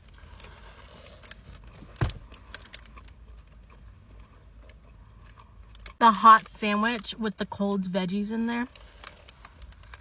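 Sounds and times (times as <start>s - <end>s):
crunchy sandwich being chewed: 0.0s - 6.0s
thump: 2.0s - 2.2s.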